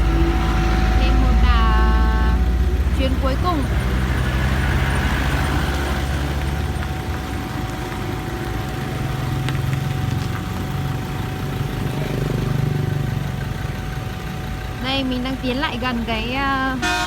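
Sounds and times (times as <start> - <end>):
thin steady whine: 0.0 - 3.8
engine idling with low rumble: 0.0 - 17.0.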